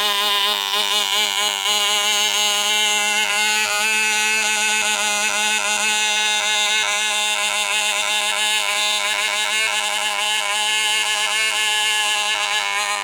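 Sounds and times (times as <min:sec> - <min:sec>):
tiny model engine buzzing: 0:00.0 - 0:13.0.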